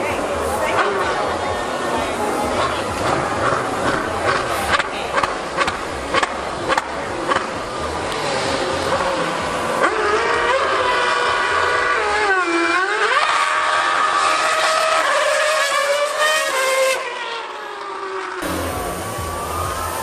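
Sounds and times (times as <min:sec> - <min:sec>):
racing car engine at high revs: 0:00.0 - 0:20.0.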